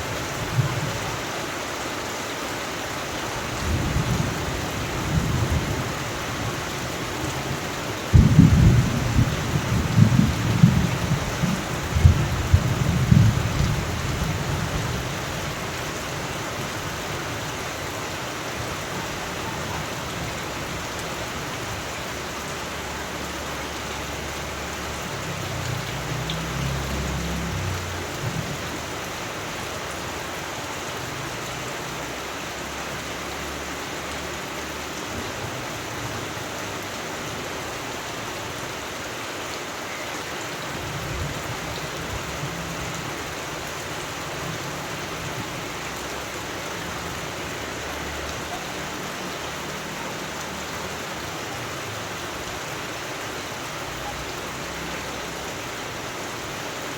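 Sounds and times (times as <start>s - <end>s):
steady rain: 0.0s - 56.9s
low rumble of thunder: 3.6s - 17.2s.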